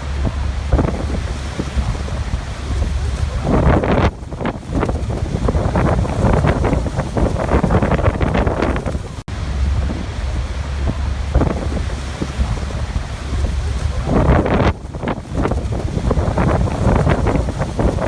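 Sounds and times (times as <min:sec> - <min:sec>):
heavy low rumble: 0:00.0 - 0:18.0
wind buffeting microphone: 0:00.0 - 0:18.0
waterfall rushing: 0:05.4 - 0:18.0.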